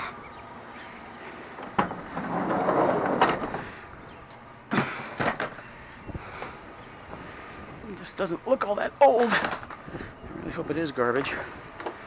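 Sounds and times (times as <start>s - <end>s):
scraping rustle: 1.9s - 3.8s.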